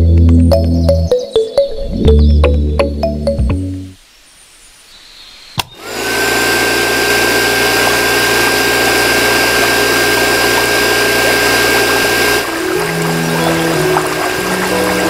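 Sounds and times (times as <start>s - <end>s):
motor switch click: 5.6s - 5.8s
small electric motor whining: 5.7s - 15.0s.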